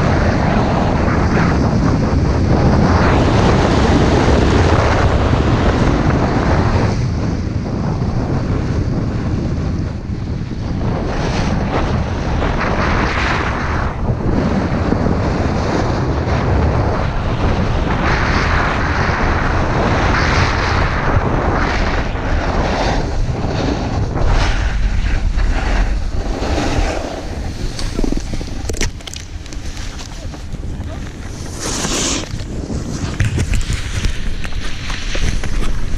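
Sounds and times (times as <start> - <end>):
wind buffeting microphone: 0.0 - 35.9.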